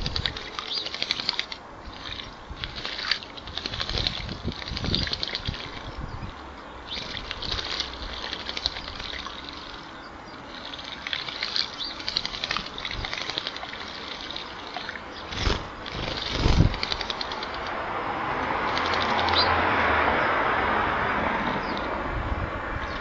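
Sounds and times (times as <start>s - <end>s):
birds splashing in bird bath: 0.0s - 22.0s.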